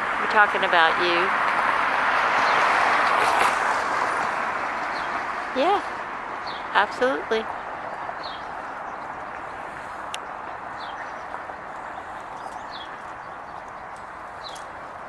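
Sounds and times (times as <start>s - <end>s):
outdoor background noise: 0.0s - 15.0s
bird chirping: 4.1s - 15.0s.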